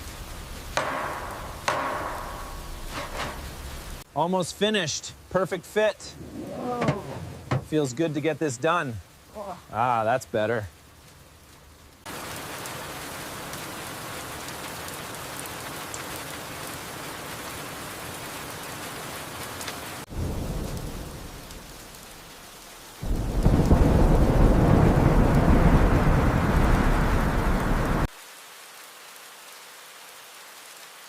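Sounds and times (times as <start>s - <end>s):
steady rain: 0.0s - 31.0s
thunder rumbling: 20.1s - 22.1s, 23.0s - 28.1s.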